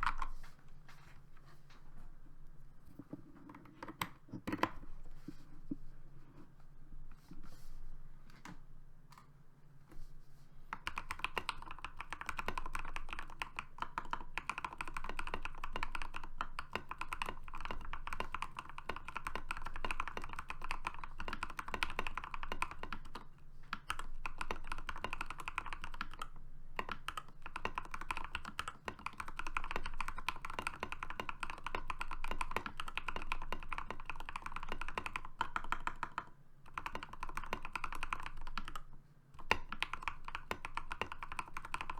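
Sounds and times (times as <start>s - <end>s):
mechanical keyboard typing: 0.0s - 0.4s, 3.2s - 4.8s, 10.7s - 41.9s.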